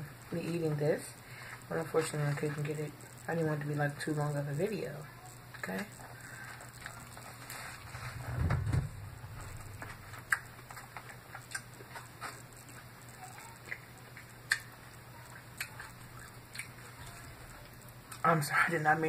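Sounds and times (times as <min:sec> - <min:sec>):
chewing salad: 0:09.8 - 0:18.4.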